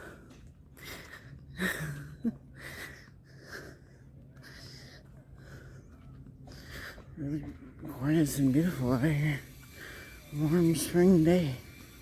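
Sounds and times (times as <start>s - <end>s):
person breathing while walking: 0.0s - 8.0s, 8.6s - 10.4s.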